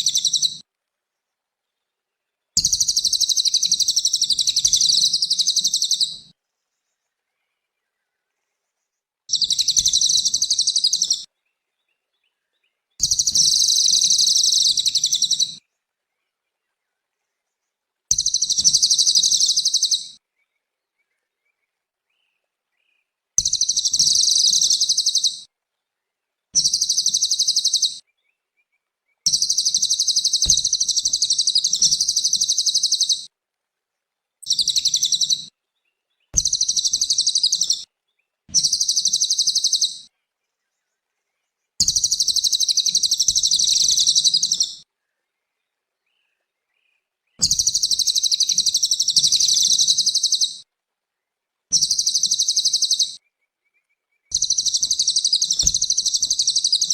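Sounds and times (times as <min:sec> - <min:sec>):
bird singing high trills: 0:13.0 - 0:15.6, 0:18.1 - 0:20.2, 0:23.4 - 0:25.5, 0:26.6 - 0:28.0, 0:29.3 - 0:33.3, 0:34.4 - 0:35.5, 0:36.4 - 0:37.8, 0:38.6 - 0:40.1, 0:41.8 - 0:44.8, 0:47.4 - 0:50.6, 0:51.8 - 0:53.2, 0:54.3 - 0:56.9.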